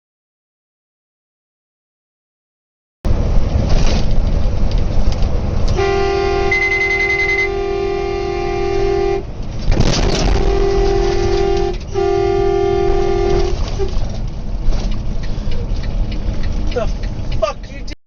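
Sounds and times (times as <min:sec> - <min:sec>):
road noise: 0:03.1 - 0:18.0
vehicle horn blaring: 0:05.7 - 0:09.3, 0:10.0 - 0:14.0
loud crash: 0:09.6 - 0:11.5.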